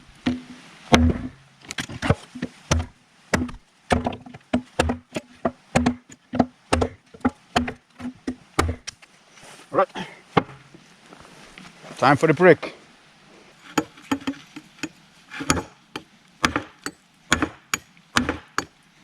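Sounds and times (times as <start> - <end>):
tomahawk chopping into wood: 0.3 - 8.9, 10.4 - 10.7, 15.4 - 18.7.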